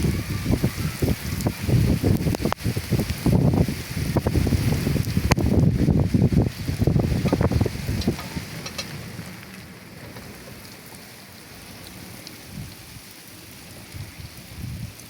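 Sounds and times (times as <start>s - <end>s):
low rumble: 0.0s - 12.9s
rain falling steadily: 0.0s - 15.0s
light drip ticks: 11.8s - 12.8s.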